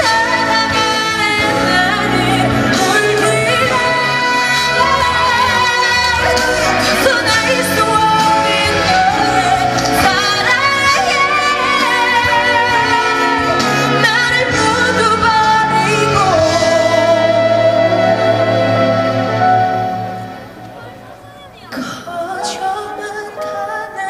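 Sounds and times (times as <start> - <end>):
woman singing pop song: 0.0 - 20.4, 21.5 - 24.0
amplified band accompaniment: 0.0 - 24.0.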